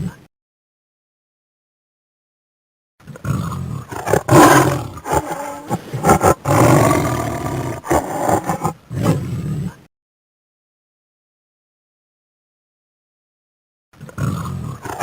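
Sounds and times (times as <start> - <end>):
big cat roaring and growling: 3.2 - 9.7, 14.0 - 15.0.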